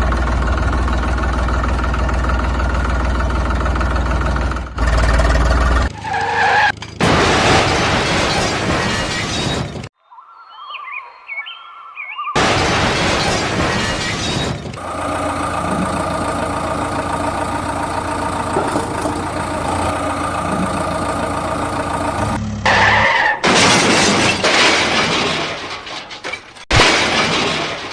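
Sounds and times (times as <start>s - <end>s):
vehicle engine running: 0.0s - 7.4s, 14.8s - 22.8s.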